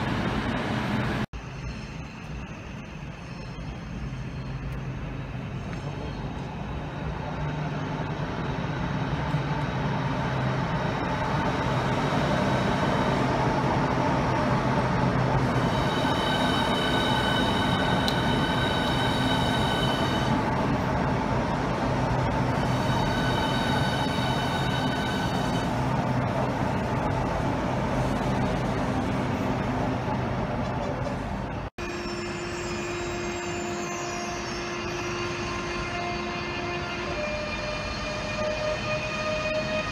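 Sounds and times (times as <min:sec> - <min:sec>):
electric train passing: 0:00.0 - 0:39.9
train approaching with hum: 0:00.0 - 0:39.9
high squeal: 0:15.6 - 0:20.4, 0:22.6 - 0:25.8, 0:31.8 - 0:39.9.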